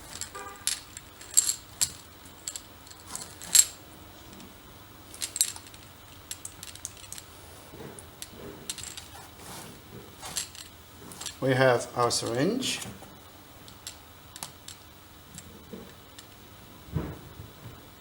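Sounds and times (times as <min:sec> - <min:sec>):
small hard parts clicking: 0:00.0 - 0:11.4.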